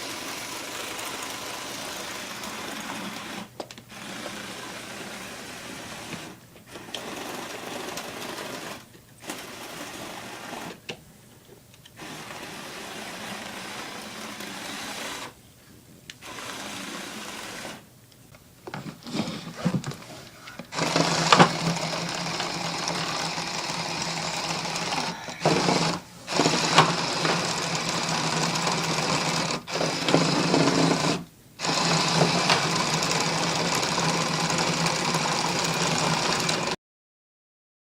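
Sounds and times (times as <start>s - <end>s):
toy electric motor whirring: 0.0s - 10.8s, 12.0s - 15.4s, 16.2s - 17.8s, 20.5s - 36.8s.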